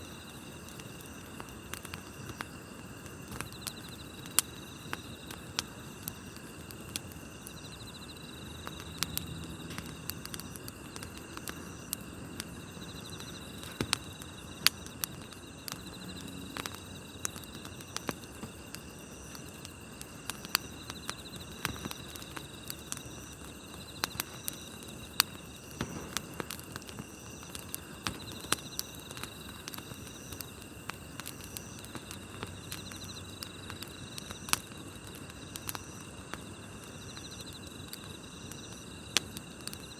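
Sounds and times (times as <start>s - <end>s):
campfire crackling and popping: 0.0s - 39.9s
crickets chirping: 0.0s - 39.9s.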